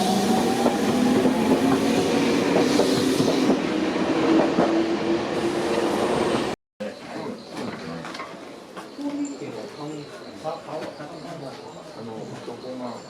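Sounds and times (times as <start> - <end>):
electric train whine: 0.0 - 6.5.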